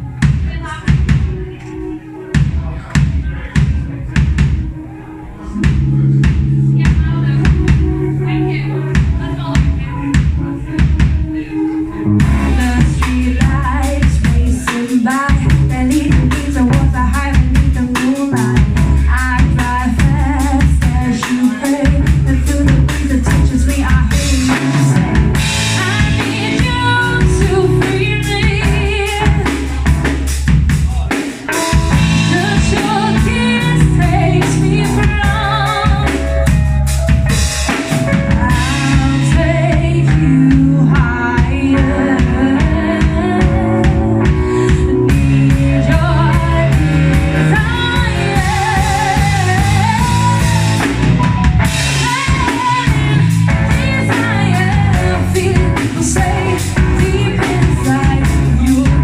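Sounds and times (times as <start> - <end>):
drum kit: 0.0 - 59.0
live band playing: 0.0 - 59.0
person singing: 7.6 - 25.0, 37.7 - 59.0.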